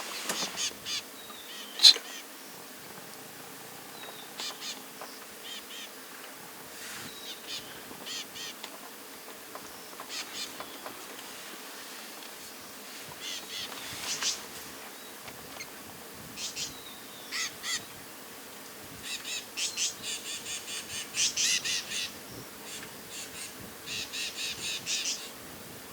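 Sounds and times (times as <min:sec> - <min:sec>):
bird giving harsh high calls: 0:17.3 - 0:17.8.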